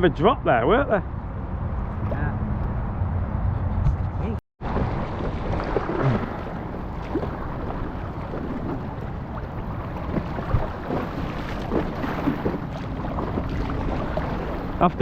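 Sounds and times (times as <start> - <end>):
wind rumbling on microphone: 0.0 - 15.0
paddle splashes: 4.6 - 15.0
water sounds from kayak: 4.6 - 15.0.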